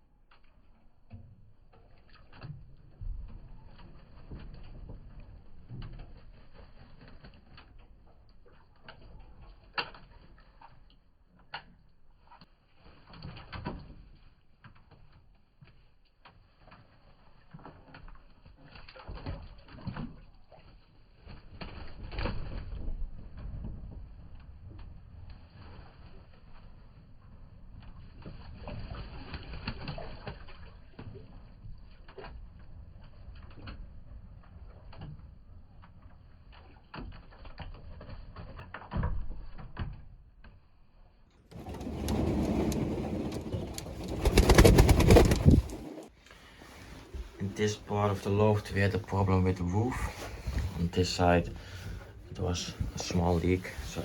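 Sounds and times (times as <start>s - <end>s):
pigeons tapping and clicking: 41.6s - 46.0s.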